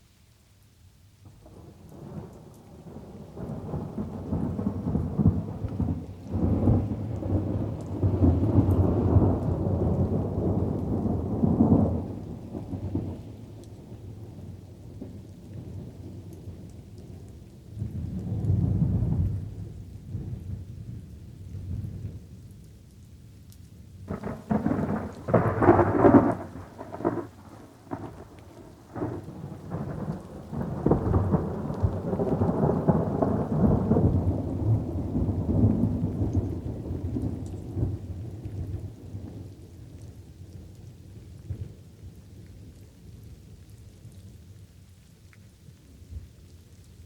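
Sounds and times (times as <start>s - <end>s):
light rain falling: 0.0s - 47.0s
rolling rumble of thunder: 1.4s - 22.4s, 24.1s - 42.7s
thunderclap crackling: 24.1s - 39.5s.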